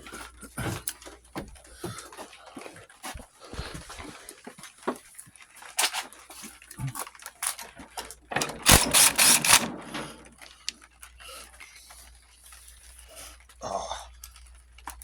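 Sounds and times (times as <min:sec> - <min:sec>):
hand tools clinking on metal: 0:08.4 - 0:09.8
rapid metal strokes: 0:08.6 - 0:09.7.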